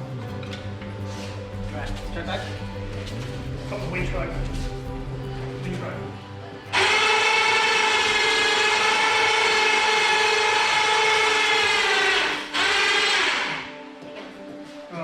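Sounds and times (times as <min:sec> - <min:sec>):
electric winch motor whining: 0:06.7 - 0:13.8.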